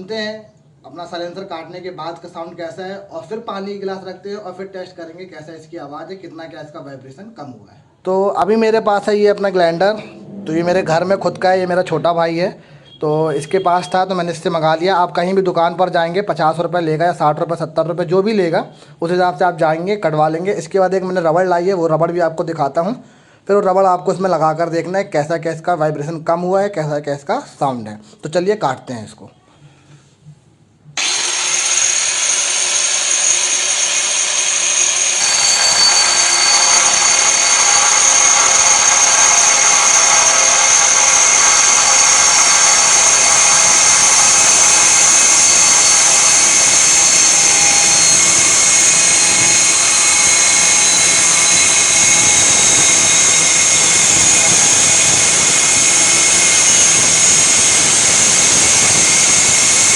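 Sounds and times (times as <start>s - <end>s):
angle grinder cutting metal: 31.0s - 59.9s.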